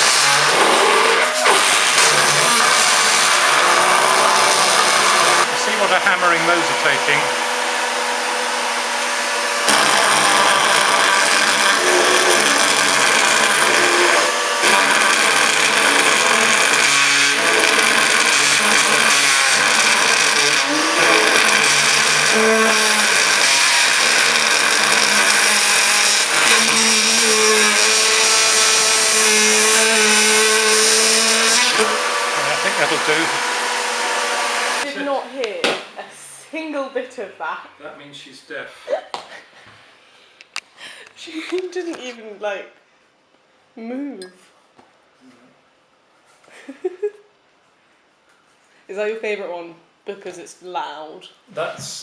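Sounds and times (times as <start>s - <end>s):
vacuum motor running: 0.0s - 35.1s
buzzing double-reed instrument: 0.0s - 35.2s.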